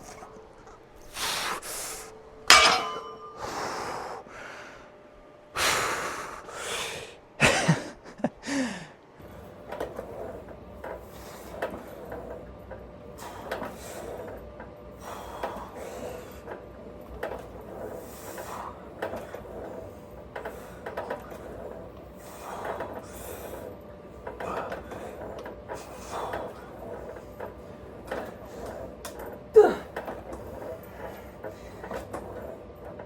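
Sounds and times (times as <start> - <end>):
gym background noise: 0.0 - 4.2
person breathing hard: 1.1 - 2.1, 3.4 - 4.9, 5.6 - 7.7, 8.4 - 9.0
metallic clank of weights: 2.4 - 3.5.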